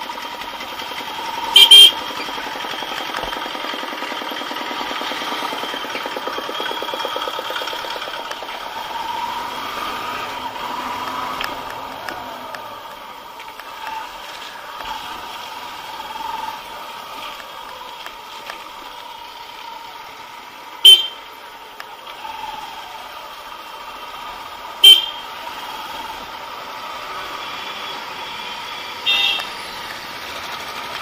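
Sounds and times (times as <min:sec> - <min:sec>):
motorcycle engine running: 0:00.0 - 0:31.0
motorcycle horn toots: 0:01.5 - 0:02.2, 0:20.8 - 0:21.3, 0:24.8 - 0:25.4, 0:27.4 - 0:29.6.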